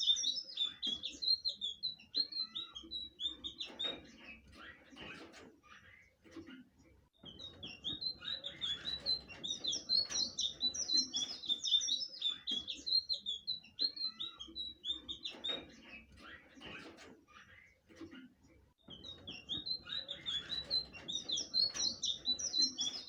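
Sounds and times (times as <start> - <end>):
bird whistling song: 0.0 - 4.0, 7.2 - 16.4, 18.8 - 23.0.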